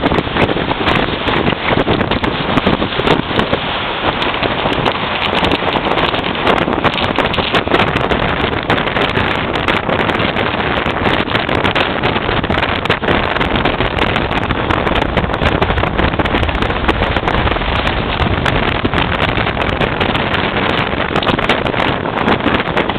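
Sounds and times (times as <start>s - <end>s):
strong wind buffeting microphone: 0.0s - 22.9s.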